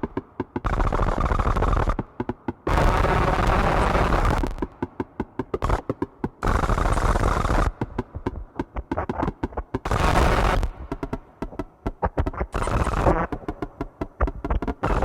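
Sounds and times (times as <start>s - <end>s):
rapid stuttering clicks and crackles: 0.0s - 15.0s
harsh distorted synthesizer noise: 2.7s - 4.7s, 6.4s - 15.0s.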